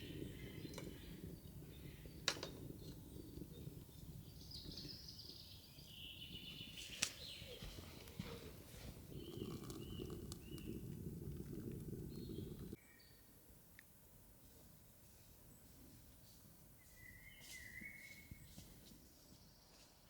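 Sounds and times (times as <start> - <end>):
birds chirping and warbling: 0.0 - 13.2
low outdoor rumble: 7.6 - 12.8.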